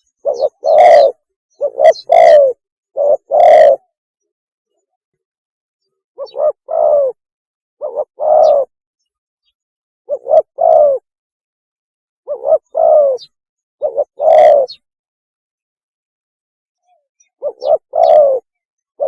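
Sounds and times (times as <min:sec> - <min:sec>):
dove cooing: 0:00.0 - 0:03.9, 0:06.2 - 0:07.2, 0:07.8 - 0:08.8, 0:10.1 - 0:11.1, 0:12.3 - 0:14.9, 0:17.4 - 0:18.5.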